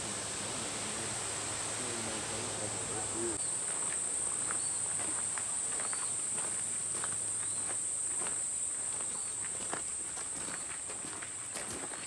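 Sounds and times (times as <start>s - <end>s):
insects droning: 0.0s - 12.0s
footsteps on path: 3.6s - 12.0s.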